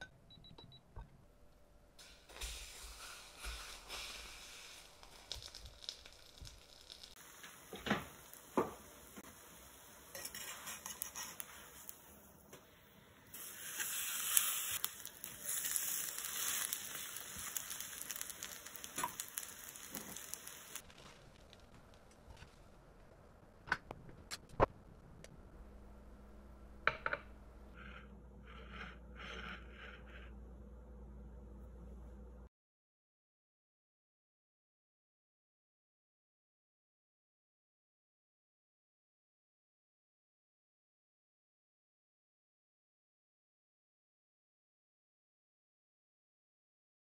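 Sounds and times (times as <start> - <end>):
battered leaf sizzling in oil: 2.0 - 12.3, 13.2 - 22.0.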